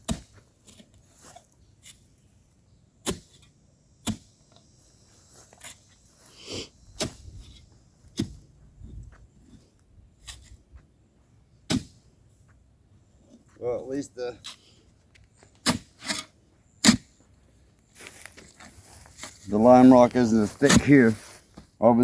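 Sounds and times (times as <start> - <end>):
digging tool chopping rocky ground: 0.0 - 2.1, 3.0 - 4.4, 6.9 - 7.4, 8.1 - 8.4, 11.7 - 12.0, 15.6 - 17.1, 20.6 - 21.0.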